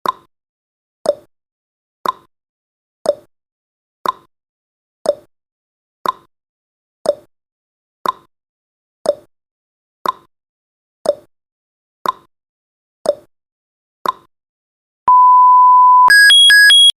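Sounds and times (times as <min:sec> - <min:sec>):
alarm of stepped beeps: 0:15.1 - 0:17.0
steady electronic beep: 0:15.1 - 0:17.0.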